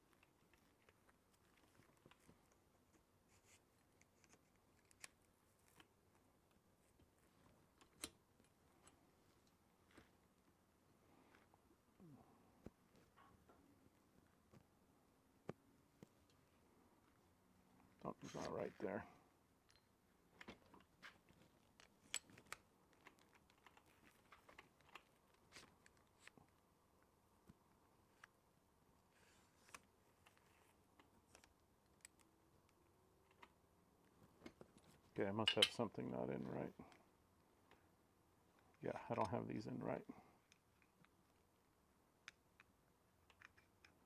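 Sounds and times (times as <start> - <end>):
faint clicks of small tool parts: 19.6 - 26.6, 42.2 - 44.0
small clicks and taps: 42.2 - 44.0.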